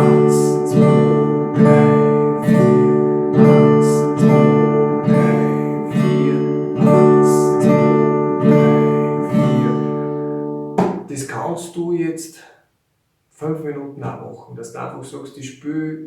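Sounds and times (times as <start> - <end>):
acoustic guitar chords strummed: 0.0 - 11.2.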